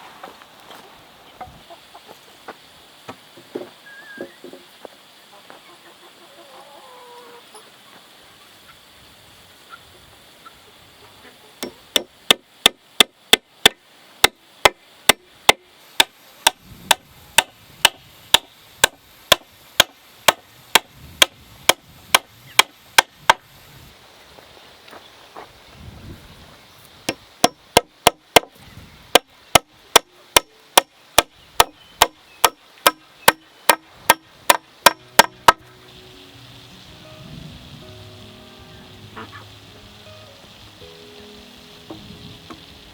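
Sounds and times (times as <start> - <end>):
chickens clucking: 1.3 - 2.6, 5.2 - 8.9, 9.7 - 11.8, 38.5 - 40.0
tool striking wood: 11.6 - 23.4, 27.1 - 28.5, 29.1 - 35.6.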